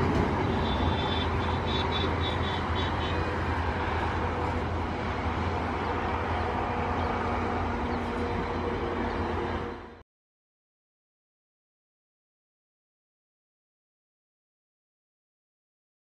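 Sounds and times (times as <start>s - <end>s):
freight train rumbling on rails: 0.0s - 10.0s
high pulsing squeal: 0.3s - 4.8s.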